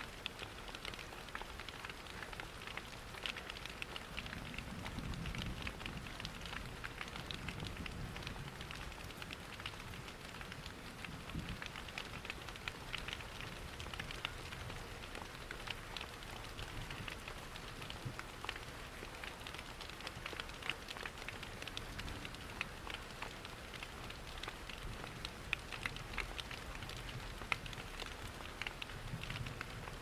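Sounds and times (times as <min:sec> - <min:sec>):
steady rain: 0:00.0 - 0:30.0
wood fire crackling: 0:00.1 - 0:30.0.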